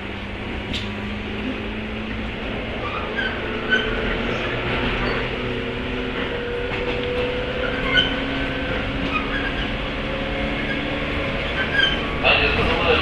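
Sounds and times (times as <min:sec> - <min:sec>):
train rolling noise: 0:00.0 - 0:13.0
high squeaks: 0:10.6 - 0:12.2.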